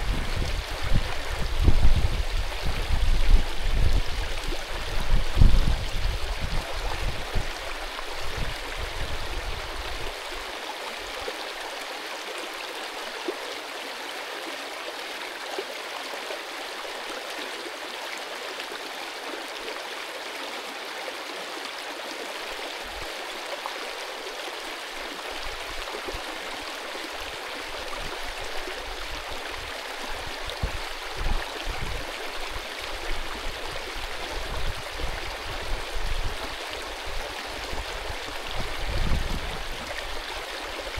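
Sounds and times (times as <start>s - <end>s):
mountain stream rushing over stones: 0.0s - 40.9s.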